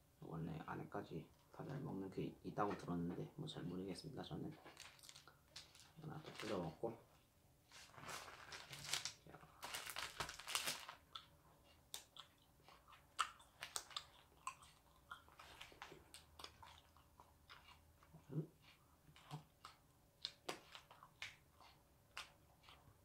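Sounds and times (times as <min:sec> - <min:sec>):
crisp crunching chewing: 0:04.6 - 0:06.7, 0:08.5 - 0:23.0.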